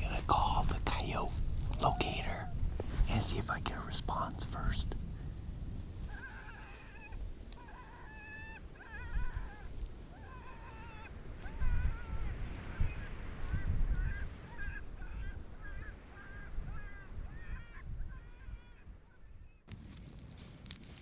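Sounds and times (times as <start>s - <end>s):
low wind rumble: 0.0s - 21.0s
electronic coyote yips and barks: 6.1s - 13.0s.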